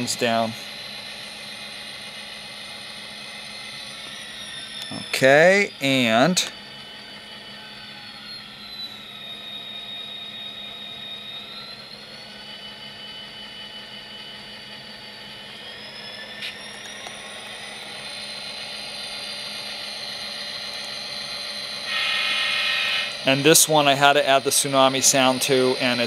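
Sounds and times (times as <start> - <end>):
diesel engine through small speaker: 0.0 - 26.0
high whine: 0.0 - 26.0.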